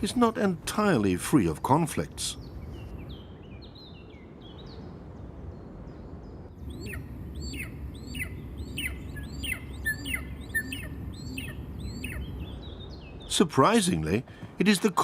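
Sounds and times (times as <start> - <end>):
small bird chirping: 6.3 - 13.4
low steady rumble: 6.6 - 13.3.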